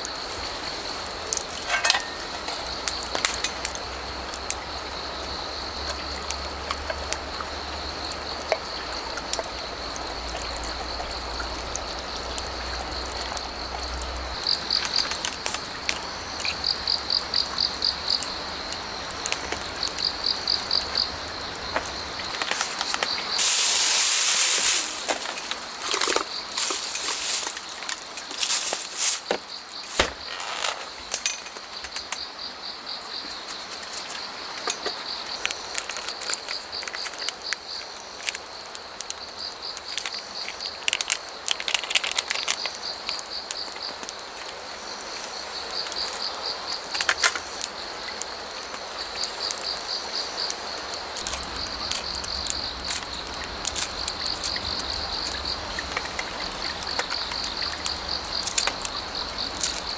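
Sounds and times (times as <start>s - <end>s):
background hiss: 0.0s - 59.9s
crickets chirping: 0.0s - 59.9s.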